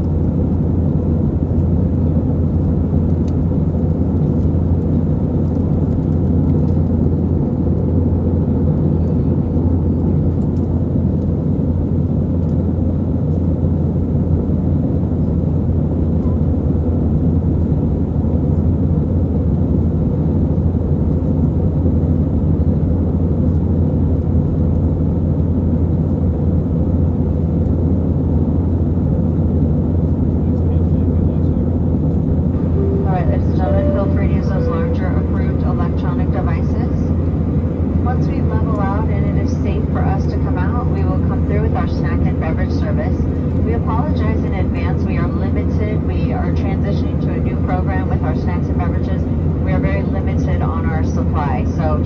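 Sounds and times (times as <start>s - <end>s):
jet engines rumbling: 23.7s - 52.0s.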